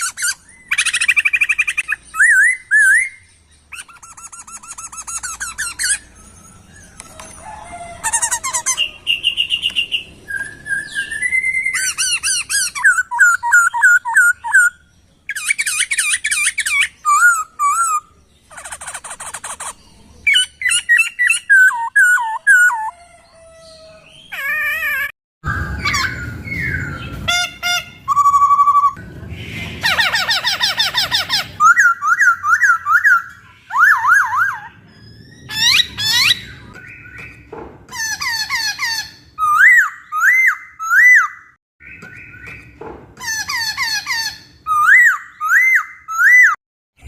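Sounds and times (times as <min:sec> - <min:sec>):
bird singing whistled trills: 0:00.0 - 0:07.0, 0:08.7 - 0:18.2, 0:30.3 - 0:37.2, 0:44.7 - 0:46.6.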